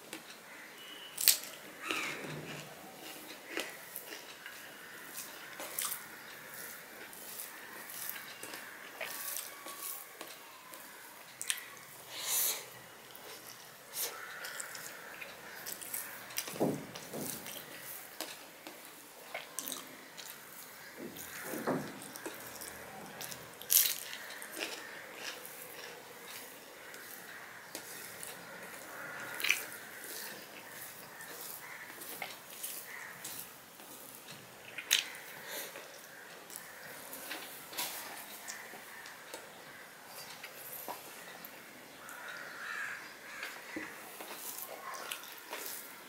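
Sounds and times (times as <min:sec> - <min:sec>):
wet chewing and mouth smacks: 0:11.3 - 0:11.6.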